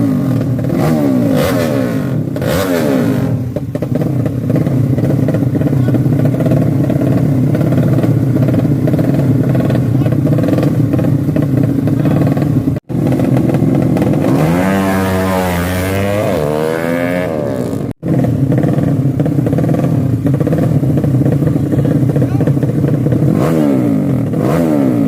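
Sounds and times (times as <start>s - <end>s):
motorcycle engine idling and revving: 0.0s - 25.0s.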